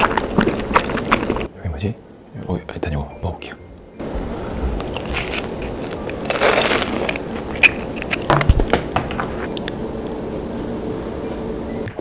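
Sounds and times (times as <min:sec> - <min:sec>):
crunching and chewing: 0:00.0 - 0:01.5, 0:04.8 - 0:08.5.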